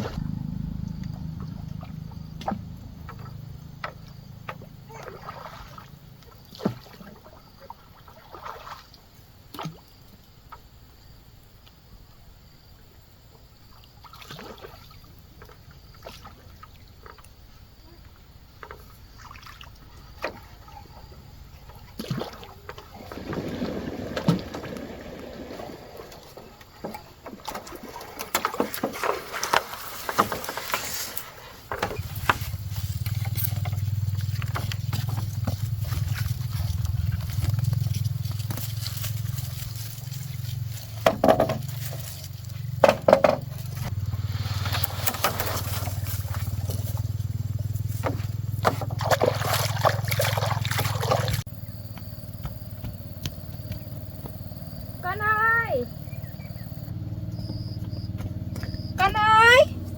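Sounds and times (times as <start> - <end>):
paddle splashes and sloshing: 0.0 - 10.7, 13.4 - 59.9
knocks against boat hull: 41.0 - 41.8, 42.8 - 43.8.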